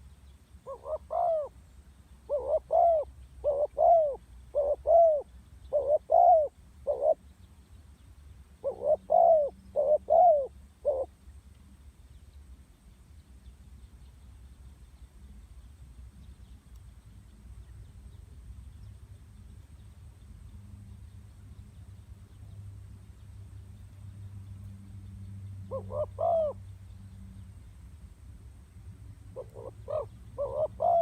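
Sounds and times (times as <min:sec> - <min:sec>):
dove cooing: 0:00.6 - 0:01.5, 0:02.3 - 0:07.2, 0:08.6 - 0:11.1, 0:25.6 - 0:26.6, 0:29.3 - 0:31.0.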